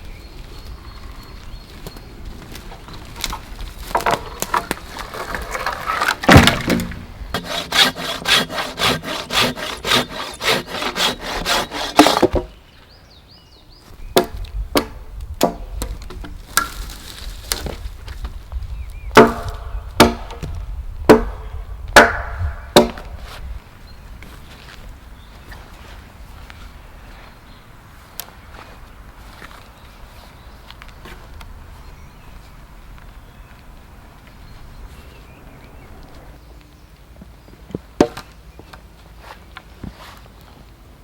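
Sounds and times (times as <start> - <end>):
wood being struck: 3.2 - 12.6, 14.2 - 17.0, 19.1 - 23.2
hand saw cutting wood: 4.0 - 12.5.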